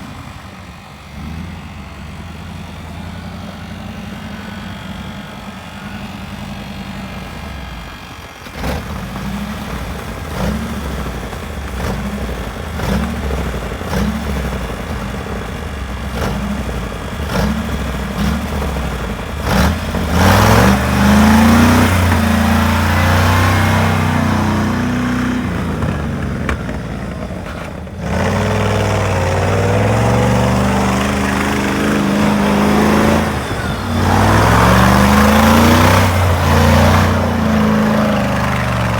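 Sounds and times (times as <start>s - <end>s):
car engine running and revving: 0.0s - 38.9s.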